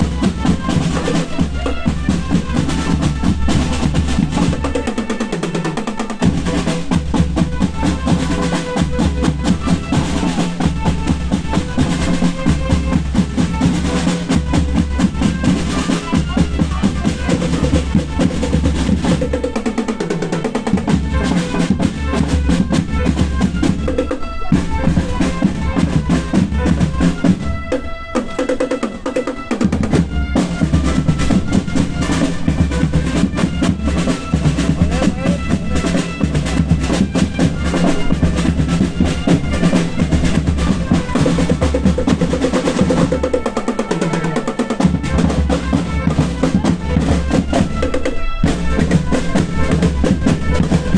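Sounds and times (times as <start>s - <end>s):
marching band melody: 0.0s - 50.9s
snare drum rolls: 0.0s - 50.9s
bass drums pounding: 29.8s - 43.0s, 44.9s - 50.9s.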